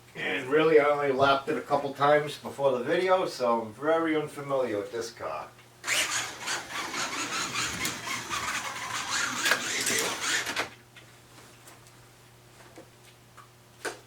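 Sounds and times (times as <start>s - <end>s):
slot car motor whirring: 5.8s - 10.7s.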